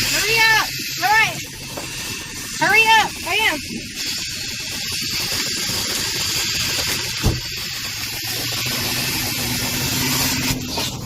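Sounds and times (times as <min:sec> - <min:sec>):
vacuum hose sucking air: 0:00.0 - 0:11.0.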